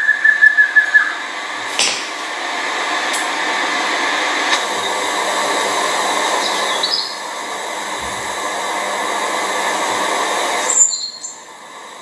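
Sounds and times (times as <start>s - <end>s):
whistled bird note: 0.0s - 2.4s
steady outdoor hiss: 0.0s - 12.0s.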